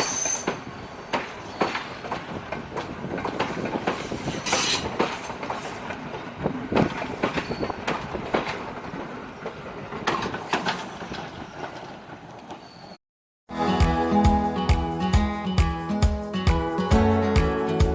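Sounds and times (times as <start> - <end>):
train wheels clattering over rail joints: 0.0 - 12.9
music: 13.5 - 17.9.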